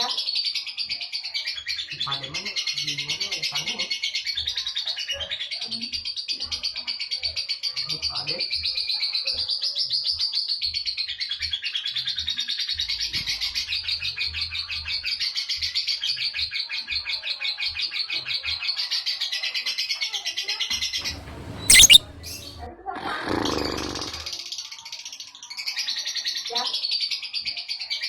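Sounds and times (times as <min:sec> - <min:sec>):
lovebird chattering trill: 0:21.1 - 0:22.6.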